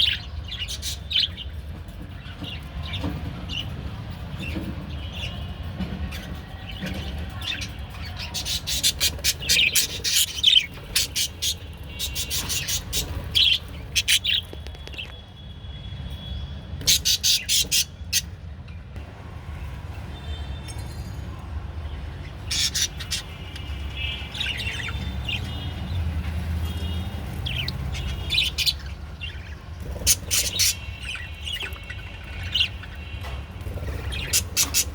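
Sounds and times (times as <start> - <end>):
budgerigars chirping: 7.6 - 14.5, 16.8 - 18.3, 22.4 - 25.7, 27.4 - 33.0, 33.7 - 34.9.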